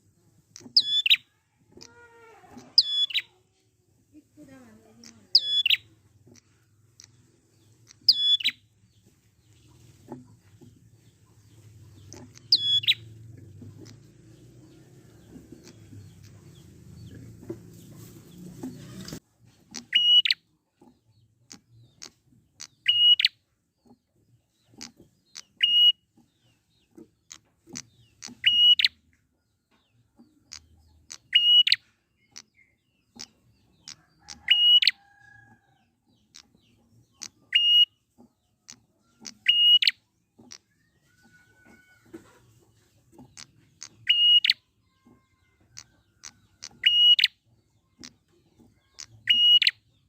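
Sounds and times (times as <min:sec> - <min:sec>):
short ticking bird notes: 0:02.6 - 0:03.3, 0:12.0 - 0:14.5, 0:19.7 - 0:20.4, 0:45.8 - 0:47.4
bird giving sharp calls: 0:43.8 - 0:44.6, 0:45.8 - 0:47.3.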